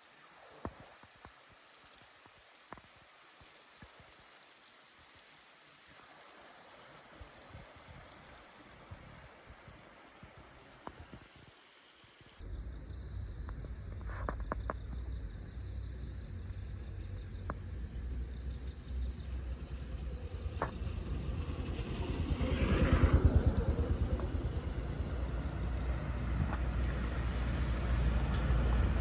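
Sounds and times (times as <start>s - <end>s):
motor vehicle rumbling: 12.4s - 29.0s.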